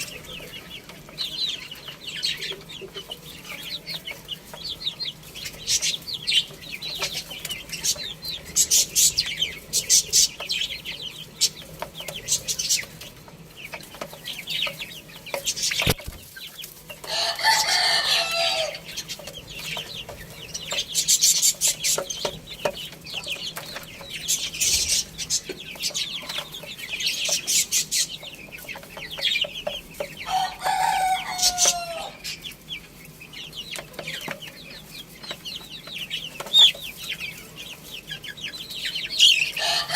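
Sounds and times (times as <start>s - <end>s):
birds chirping: 0.0s - 39.9s
hens clucking: 0.0s - 39.9s
rooster crowing: 17.0s - 18.9s, 30.2s - 32.2s, 39.4s - 39.9s.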